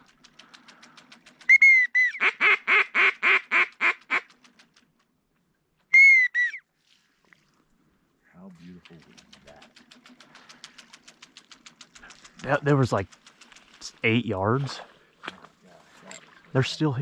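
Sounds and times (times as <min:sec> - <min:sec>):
duck whistle notes: 0:01.5 - 0:03.7, 0:05.9 - 0:06.6.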